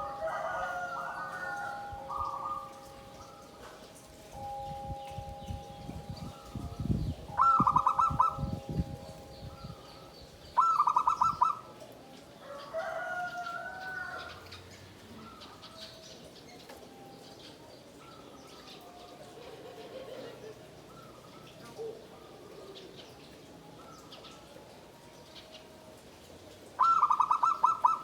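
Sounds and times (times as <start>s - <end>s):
dove cooing: 0.0s - 4.4s, 6.1s - 14.5s, 18.0s - 24.8s, 26.7s - 28.0s.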